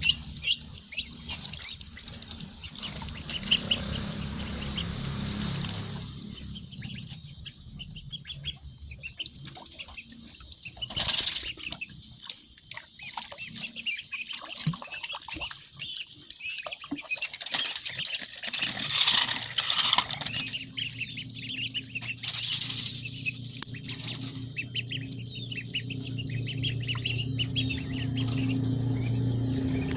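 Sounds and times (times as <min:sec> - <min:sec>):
splashing and fluttering: 0:00.0 - 0:07.3, 0:09.0 - 0:29.9
steady low hum: 0:00.0 - 0:11.6, 0:18.8 - 0:29.9
ducklings peeping: 0:00.0 - 0:29.9.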